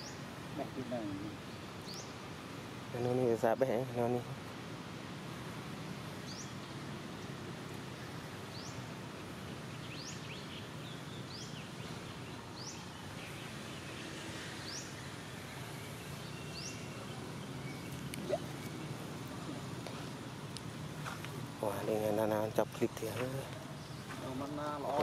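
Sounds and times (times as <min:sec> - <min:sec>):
background hiss: 0:00.0 - 0:25.0
bird rising chirp: 0:09.7 - 0:19.7.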